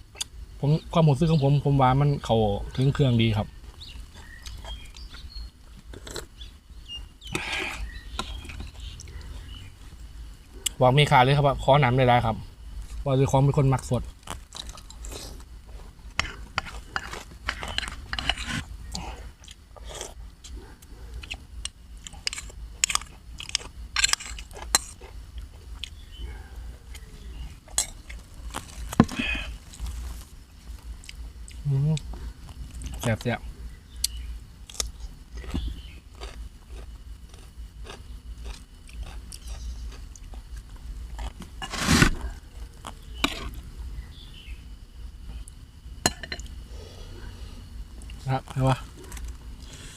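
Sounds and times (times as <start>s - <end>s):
person chewing and crunching food: 3.7s - 6.4s, 14.2s - 26.0s, 26.8s - 33.1s, 34.0s - 43.7s.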